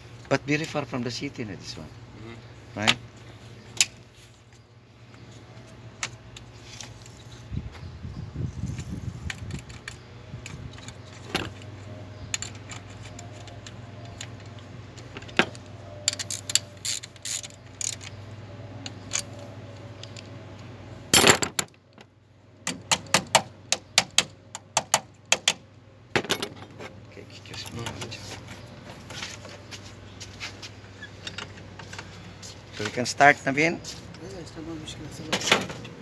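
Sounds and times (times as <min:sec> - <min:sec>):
ratchet wrench clicks: 0:16.1 - 0:18.1
metallic tool clinks and clicks: 0:21.2 - 0:21.6
loud rustling clatter: 0:21.2 - 0:21.7.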